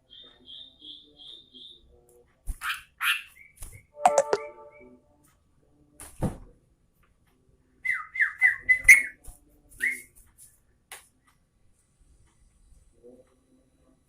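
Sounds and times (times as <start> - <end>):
bird whistled song: 7.8 - 9.2.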